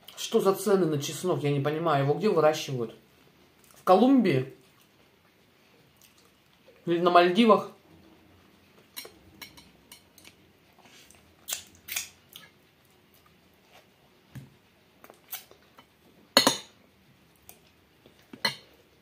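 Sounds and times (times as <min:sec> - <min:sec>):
person chewing: 0:03.6 - 0:03.8, 0:04.6 - 0:06.8, 0:08.8 - 0:14.0, 0:15.0 - 0:16.0
wet mouth clicks and lip smacks: 0:11.4 - 0:12.5, 0:15.0 - 0:15.7.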